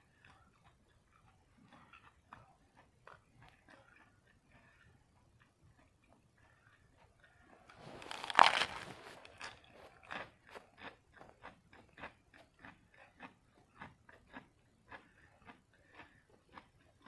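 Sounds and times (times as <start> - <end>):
person chewing crisp lettuce: 6.5 - 17.0.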